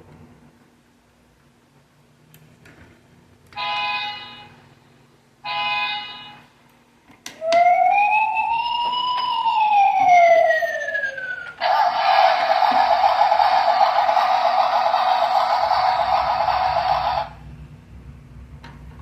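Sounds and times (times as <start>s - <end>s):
toy siren wail: 7.4s - 17.3s
harsh electronic noise: 10.9s - 17.4s.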